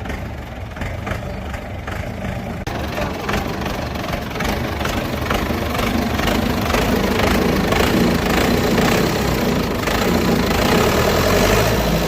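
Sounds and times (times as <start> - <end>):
tractor diesel engine knocking: 0.0 - 12.0.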